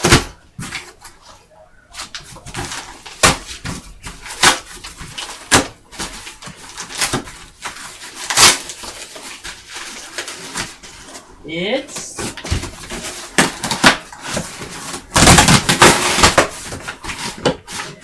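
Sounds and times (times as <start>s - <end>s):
loud knocks on cardboard: 15.1s - 16.8s.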